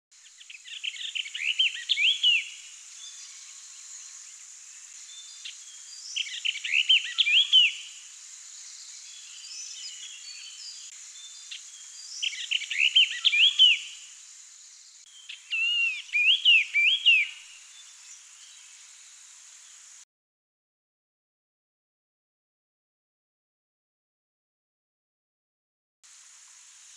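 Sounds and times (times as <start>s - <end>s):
bird singing: 0.2s - 19.0s
high-pitched background hiss: 0.2s - 20.0s, 26.0s - 26.9s.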